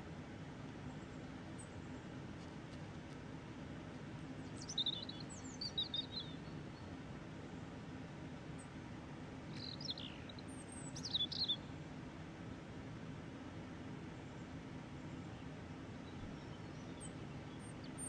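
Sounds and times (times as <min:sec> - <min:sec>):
small bird chirping: 0:04.5 - 0:06.5, 0:09.5 - 0:11.6.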